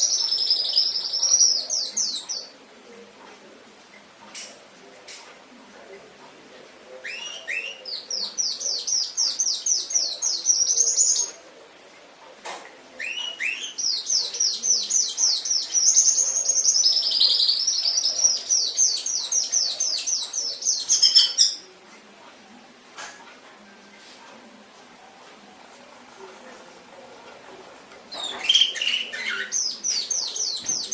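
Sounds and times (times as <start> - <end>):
canary singing: 0.0 - 2.6, 6.9 - 11.4, 13.0 - 21.8, 28.1 - 30.9.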